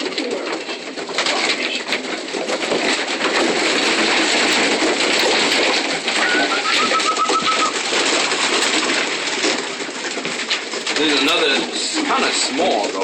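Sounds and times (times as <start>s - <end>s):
pigeons cooing: 0.0s - 13.0s
high peeps: 6.2s - 7.8s.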